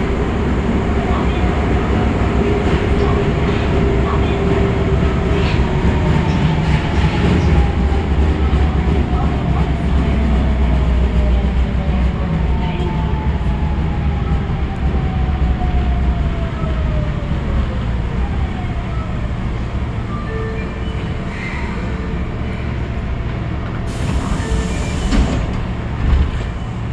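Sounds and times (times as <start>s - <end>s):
wheels rumbling on rail: 0.0s - 26.9s.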